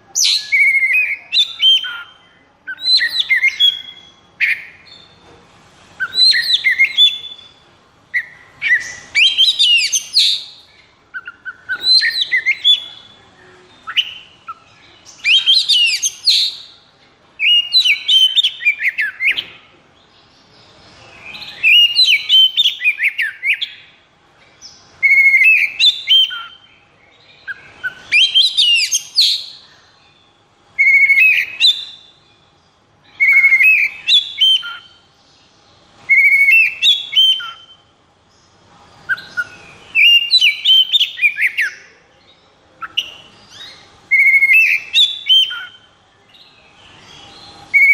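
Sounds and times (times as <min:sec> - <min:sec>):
bird singing whistled phrases: 0:00.1 - 0:05.2, 0:06.0 - 0:13.2, 0:13.8 - 0:16.8, 0:17.4 - 0:19.6, 0:21.1 - 0:24.0, 0:25.0 - 0:26.7, 0:27.4 - 0:29.7, 0:30.8 - 0:32.3, 0:33.1 - 0:35.1, 0:36.1 - 0:37.9, 0:39.1 - 0:41.9, 0:42.8 - 0:47.9.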